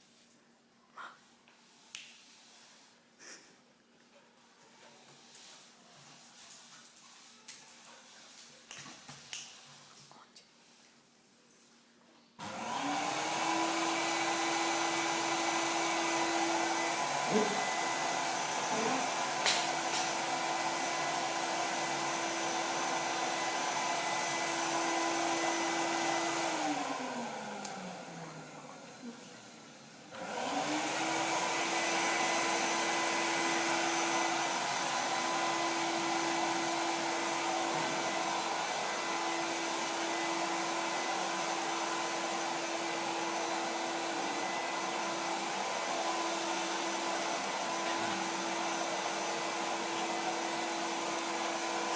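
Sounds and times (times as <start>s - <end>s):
vacuum cleaner motor whining: 12.4s - 51.9s.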